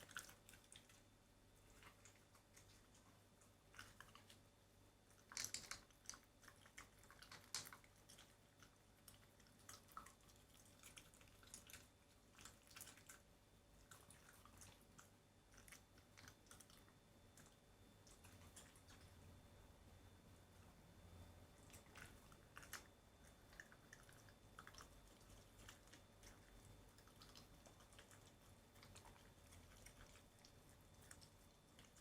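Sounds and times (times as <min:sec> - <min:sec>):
dog chewing meat: 0:21.5 - 0:32.0.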